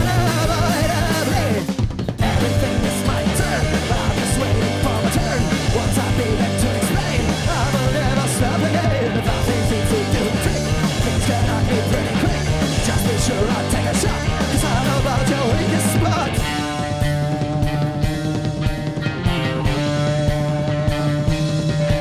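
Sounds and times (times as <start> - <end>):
sung vocals: 0.0 - 17.1
bass: 0.0 - 22.0
distorted guitars: 0.0 - 22.0
drums with cymbal crashes: 0.0 - 22.0.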